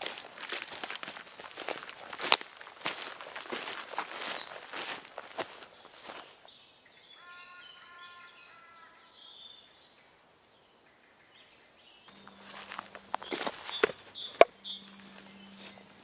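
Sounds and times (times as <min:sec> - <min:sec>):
footsteps on leaf litter: 0:00.0 - 0:06.5, 0:12.1 - 0:16.0
songbird singing high notes: 0:06.5 - 0:10.0, 0:11.2 - 0:16.0.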